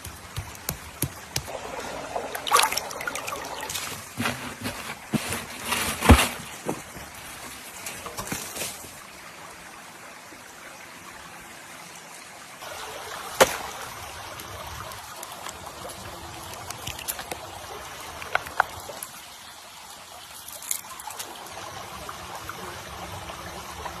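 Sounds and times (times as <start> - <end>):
water trickling: 0.0 - 5.3.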